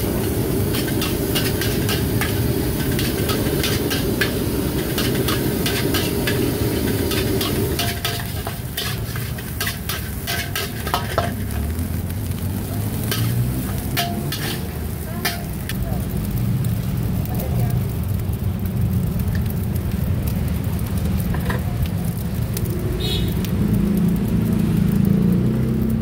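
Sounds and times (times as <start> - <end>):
metal spatula scraping a wok: 0.0 - 11.8, 12.8 - 15.8
food sizzling: 0.0 - 26.0.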